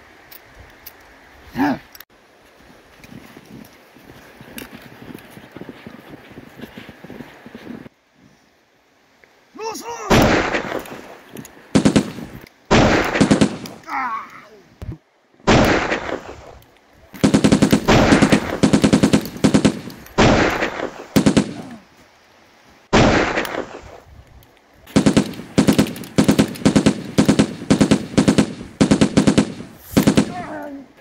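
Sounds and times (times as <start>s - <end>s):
single heavy gunshot: 10.1s - 11.0s, 11.8s - 13.6s, 15.5s - 16.5s, 17.3s - 21.7s, 22.9s - 24.0s
automatic gunfire bursts: 11.8s - 13.8s, 17.2s - 21.7s, 24.9s - 30.4s.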